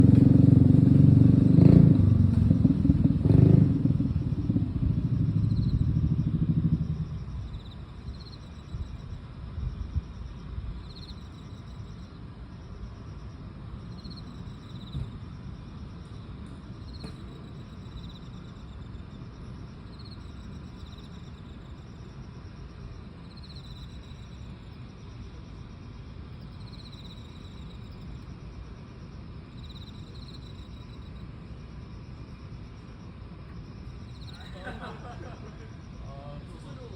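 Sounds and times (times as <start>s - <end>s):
loud vehicle engine: 0.0s - 7.4s
insects chirping and trilling: 0.0s - 36.9s.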